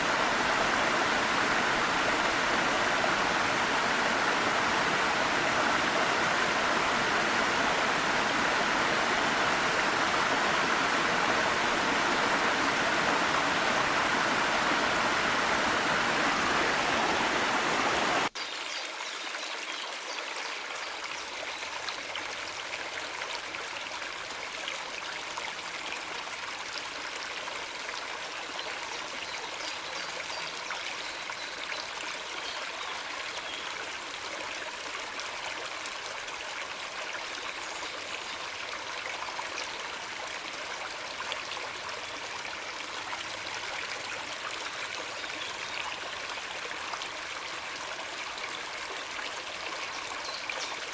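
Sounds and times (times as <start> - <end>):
stream and waterfall rushing: 0.0 - 18.8
water babbling: 0.0 - 50.9.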